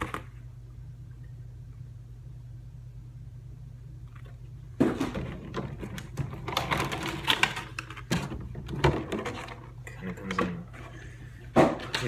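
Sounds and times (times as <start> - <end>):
steady low hum: 0.0 - 12.0
packaging crinkling and scraping: 5.0 - 10.3.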